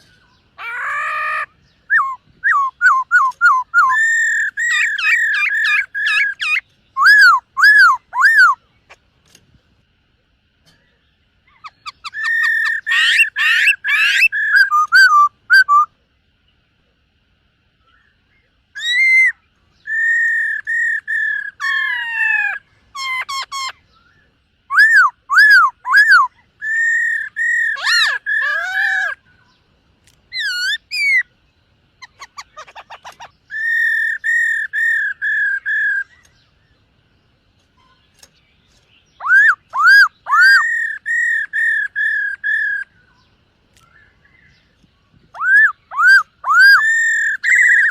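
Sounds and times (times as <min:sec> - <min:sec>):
bird singing whistled phrases: 0:00.2 - 0:08.6, 0:11.5 - 0:15.9, 0:18.8 - 0:29.2, 0:30.3 - 0:31.3, 0:32.1 - 0:36.4, 0:39.1 - 0:43.2, 0:45.3 - 0:47.9.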